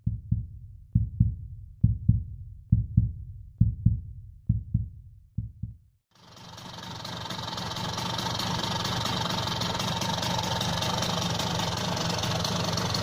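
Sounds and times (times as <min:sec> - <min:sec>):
heartbeat thumps: 0:00.0 - 0:05.9.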